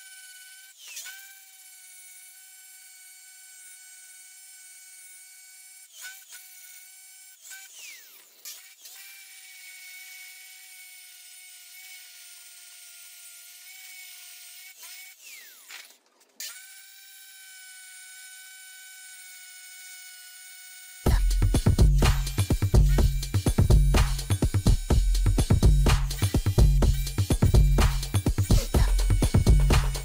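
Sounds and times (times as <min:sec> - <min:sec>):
electric drill motor whine: 0:00.0 - 0:30.0
electronic music with a beat: 0:21.1 - 0:30.0.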